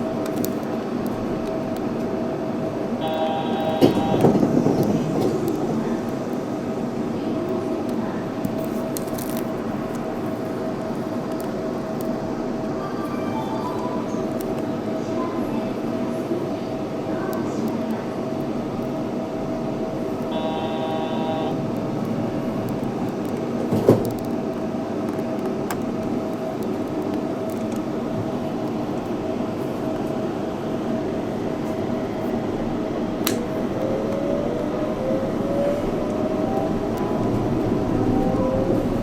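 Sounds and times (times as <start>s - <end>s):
train running noise: 0.0s - 39.0s
stack of tones: 3.0s - 4.2s, 20.3s - 21.6s
motor whine rising in pitch: 20.3s - 21.6s.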